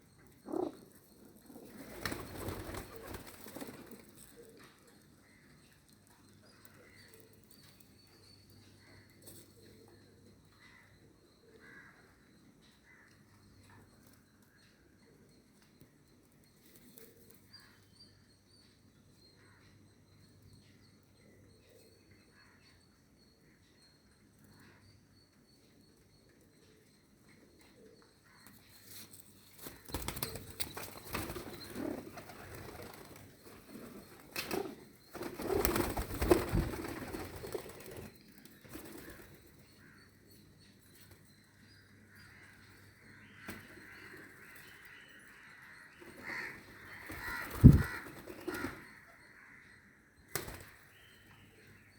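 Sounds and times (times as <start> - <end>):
pigeons cooing: 0.4 - 4.6
wings flapping: 1.8 - 4.0, 34.4 - 38.1, 47.1 - 48.7.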